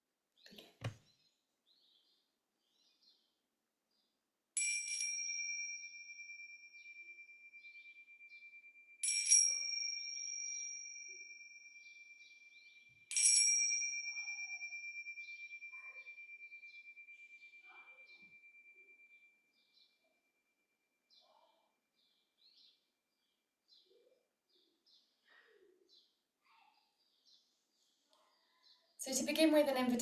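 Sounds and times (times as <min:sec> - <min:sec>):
meditation bell ringing: 0:04.6 - 0:19.4.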